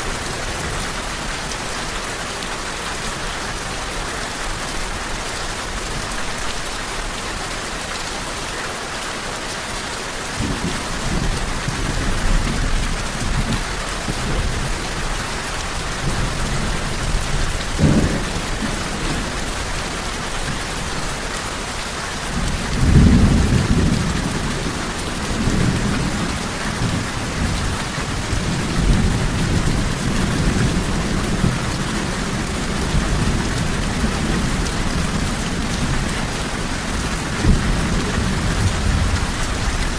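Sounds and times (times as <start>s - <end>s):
steady rain falling: 0.0s - 39.9s
low rolling thunder: 10.4s - 21.0s, 22.3s - 39.9s.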